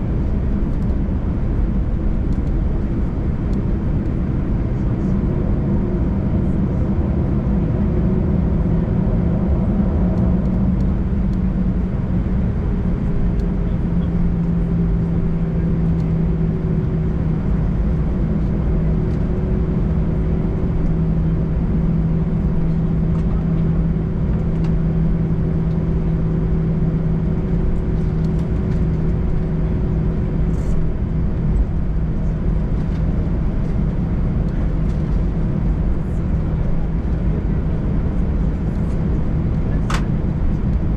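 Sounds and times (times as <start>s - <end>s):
jet engines droning in cabin: 0.0s - 40.9s.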